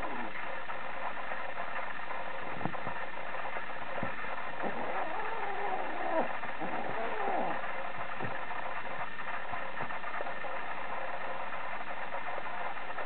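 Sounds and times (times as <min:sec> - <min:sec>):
steady background hum: 0:00.0 - 0:13.0
kitten mewing: 0:04.6 - 0:07.6.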